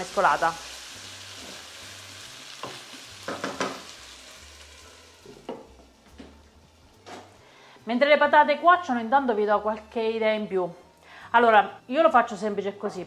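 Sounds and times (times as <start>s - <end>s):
potatoes sizzling in a frying pan: 0.0s - 7.5s.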